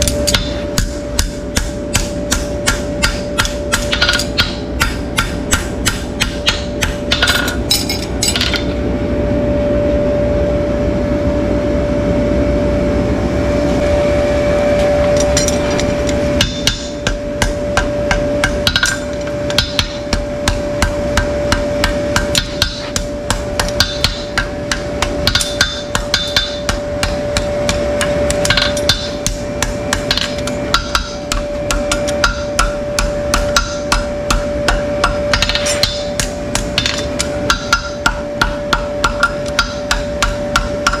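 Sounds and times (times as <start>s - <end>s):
hammer striking: 0.0s - 8.8s, 15.1s - 41.0s
steady hum: 0.0s - 41.0s.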